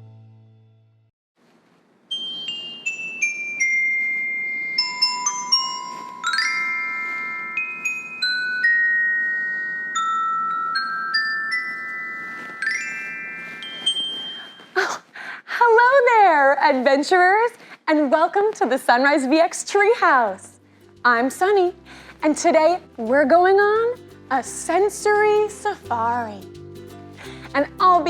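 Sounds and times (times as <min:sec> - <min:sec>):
glockenspiel-like mallet notes: 0:02.1 - 0:14.8.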